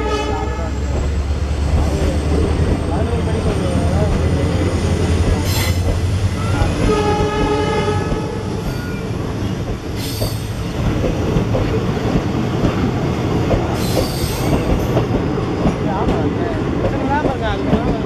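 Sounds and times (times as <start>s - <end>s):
train horn: 0.0s - 0.8s, 6.8s - 8.6s
train wheels rumbling on rails: 0.0s - 18.0s.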